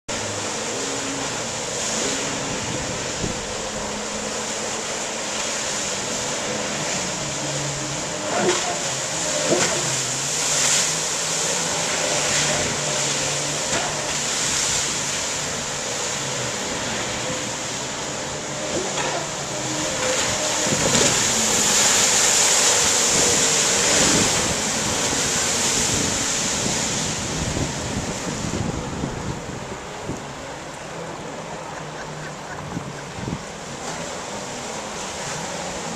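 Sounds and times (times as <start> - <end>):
jet ski engines running: 0.1 - 35.9
water noise: 0.1 - 35.9
wind on microphone: 2.1 - 4.3, 17.2 - 34.1.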